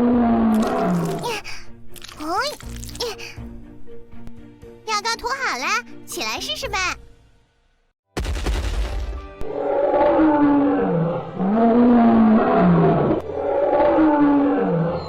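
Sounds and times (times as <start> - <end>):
cartoon dinosaur roaring: 0.0 - 1.3, 9.4 - 15.0.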